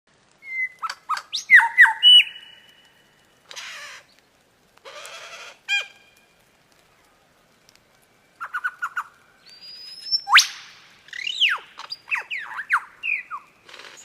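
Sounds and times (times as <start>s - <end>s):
lyrebird whistled calls: 0.4s - 2.8s, 8.4s - 14.0s.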